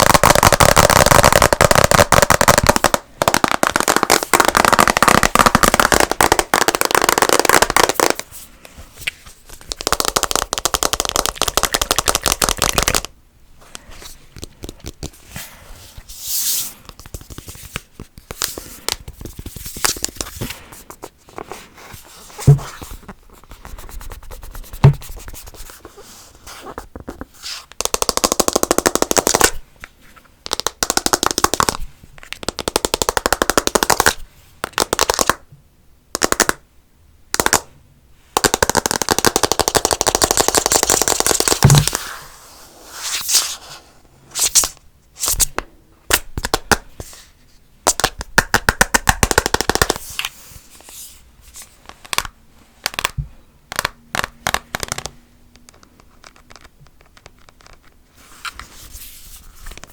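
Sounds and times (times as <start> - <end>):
fast tapping on hard objects: 0.0 - 8.2, 9.6 - 13.1, 23.8 - 25.4, 27.8 - 29.6, 30.4 - 35.4, 36.1 - 36.6, 38.4 - 42.0, 47.9 - 50.0.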